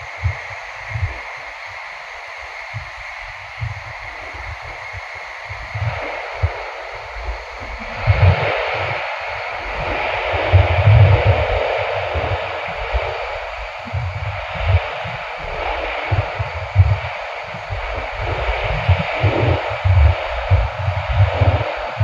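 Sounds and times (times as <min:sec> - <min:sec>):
train rushing hiss: 0:00.0 - 0:22.0
low rumbling: 0:09.8 - 0:22.0.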